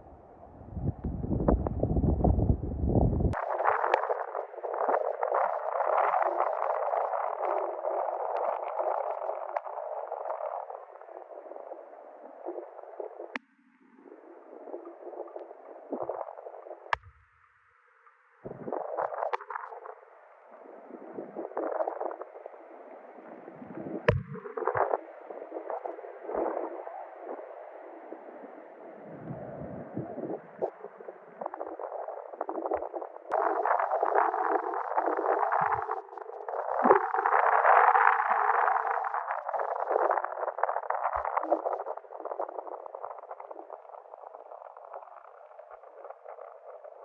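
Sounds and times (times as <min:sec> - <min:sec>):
wind buffeting microphone: 0:00.4 - 0:03.4, 0:29.1 - 0:38.1
wind gusting over microphone: 0:00.4 - 0:09.2, 0:28.9 - 0:44.7
crackling: 0:03.3 - 0:17.2, 0:18.0 - 0:22.6, 0:30.6 - 0:47.0.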